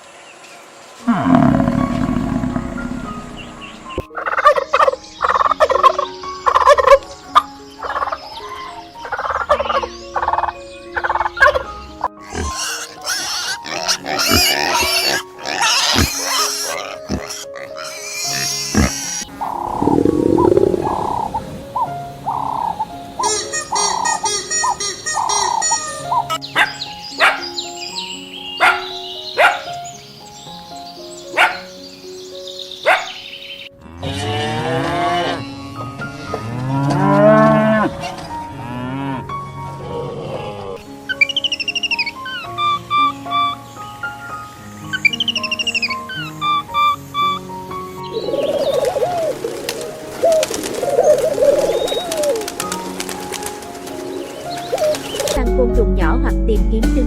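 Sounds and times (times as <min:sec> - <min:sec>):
background music with held notes: 0:00.0 - 0:57.0
cow mooing: 0:01.0 - 0:04.0, 0:33.8 - 0:35.4, 0:36.4 - 0:40.8
animal squeals and grunts: 0:01.1 - 0:04.0, 0:12.2 - 0:21.6.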